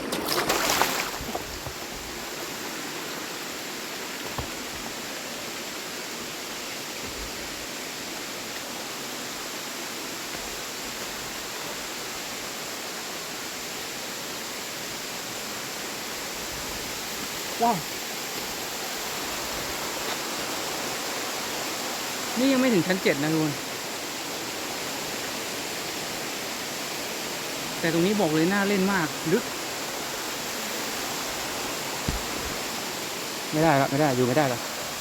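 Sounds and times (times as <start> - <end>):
waterfall pouring into pool: 0.0 - 1.4.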